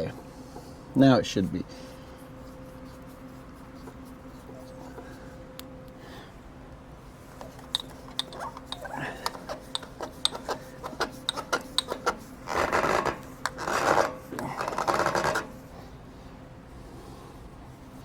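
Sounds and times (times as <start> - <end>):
rasping rubs: 1.7 - 5.5, 7.2 - 16.0
light clicks and taps: 7.3 - 12.2.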